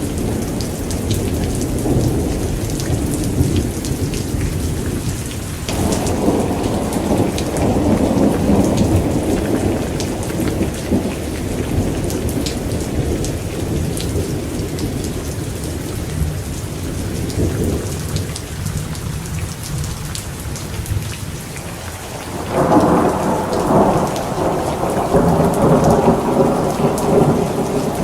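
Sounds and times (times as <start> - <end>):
thunder rumbling: 0.0 - 18.8, 20.9 - 28.0
heavy rain with drop impacts: 0.0 - 28.0.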